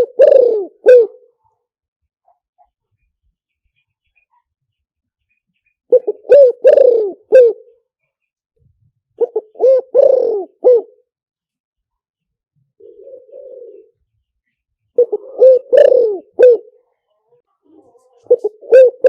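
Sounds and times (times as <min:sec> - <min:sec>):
dove cooing: 0:00.0 - 0:01.3, 0:05.9 - 0:07.8, 0:09.2 - 0:11.1, 0:12.8 - 0:14.0, 0:15.0 - 0:16.8, 0:17.7 - 0:19.0.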